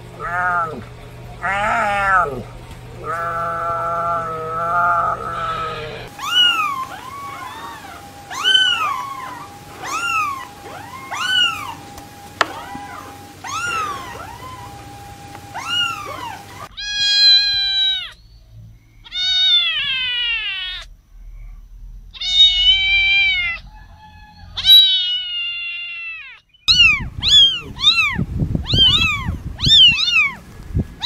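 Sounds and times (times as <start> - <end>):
kittens mewing: 0.2 - 18.2, 19.0 - 20.9, 22.1 - 23.6, 24.6 - 30.4
kitten meowing loudly: 3.0 - 11.8, 12.5 - 14.7, 15.5 - 18.2, 19.1 - 20.9, 22.1 - 23.6, 24.6 - 30.4.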